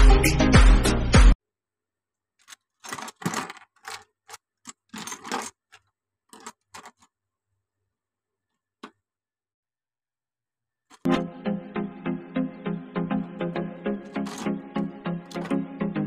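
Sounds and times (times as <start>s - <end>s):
plastic bricks clicking and rattling: 2.4s - 7.1s, 14.0s - 14.6s, 15.2s - 15.6s.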